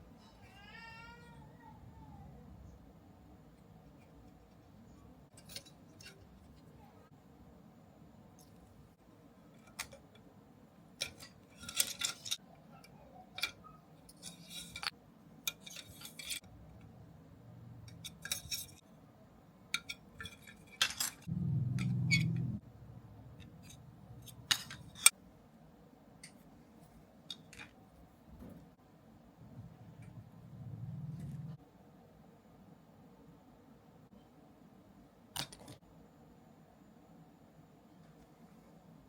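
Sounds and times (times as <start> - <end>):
parts and tools clinking: 5.3 - 6.7, 11.0 - 12.4, 13.3 - 16.5, 17.8 - 18.8, 19.7 - 22.5, 23.4 - 25.1
short low hum: 21.3 - 23.2.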